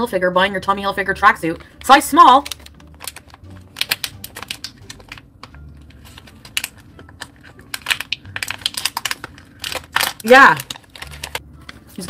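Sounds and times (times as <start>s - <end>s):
food crunches: 2.5s - 5.6s, 6.2s - 11.4s.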